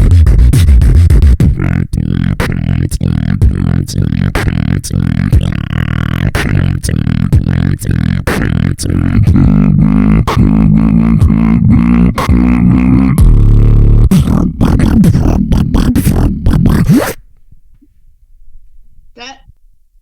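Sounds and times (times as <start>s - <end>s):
beatboxed snare clicks: 0.0s - 1.6s, 2.4s - 2.7s, 4.4s - 4.6s, 6.4s - 6.6s
beatboxing bass line: 0.0s - 17.6s.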